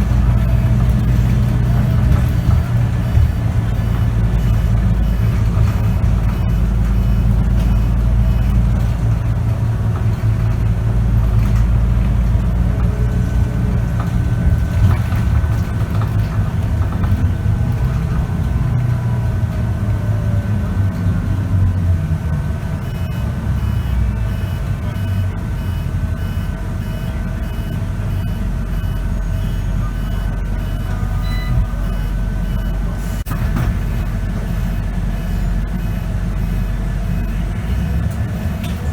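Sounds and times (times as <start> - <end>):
bus diesel engine droning: 0.0 - 38.9
high repeating beep: 0.2 - 8.6, 22.8 - 38.5.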